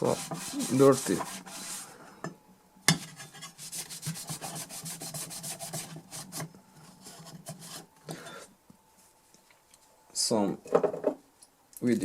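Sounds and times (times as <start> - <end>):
scrubbing strokes: 0.0 - 2.0, 3.3 - 7.9.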